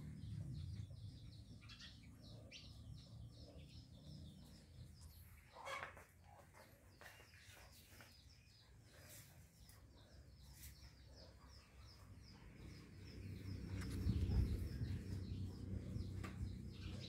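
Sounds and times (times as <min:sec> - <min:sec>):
small birds chirping: 0:00.0 - 0:17.0
low rumbling noise: 0:12.4 - 0:17.0.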